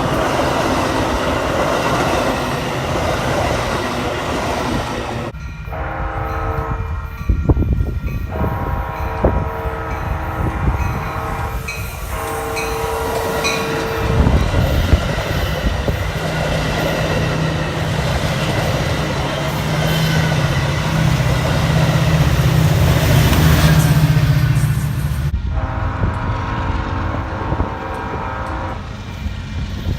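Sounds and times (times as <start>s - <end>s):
train engine hum and rail noise: 0.0s - 29.9s
wind buffeting microphone: 0.0s - 29.9s
train horn: 5.7s - 15.0s, 25.4s - 29.0s.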